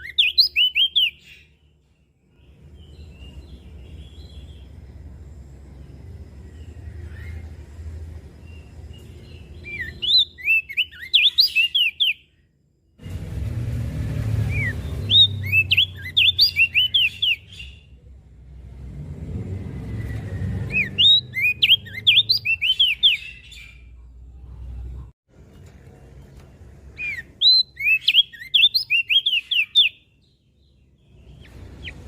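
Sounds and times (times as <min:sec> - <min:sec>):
bird singing high chirps: 0:00.0 - 0:12.6, 0:14.4 - 0:18.0, 0:19.7 - 0:24.0, 0:27.0 - 0:32.0
low rumble: 0:13.0 - 0:15.4.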